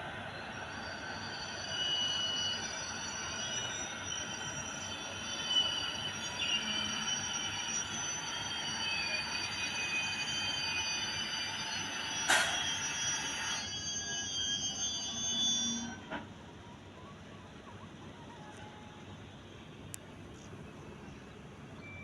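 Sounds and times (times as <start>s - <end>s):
train wheels rumbling on rails: 8.3s - 13.9s.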